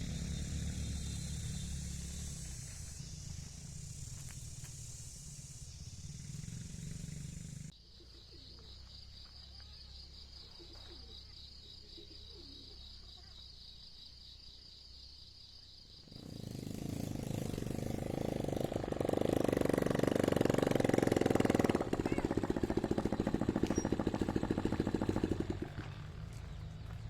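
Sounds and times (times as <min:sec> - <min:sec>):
motor running: 0:00.0 - 0:07.7, 0:16.2 - 0:26.5
faint bird chirps: 0:00.0 - 0:14.7, 0:21.7 - 0:27.0.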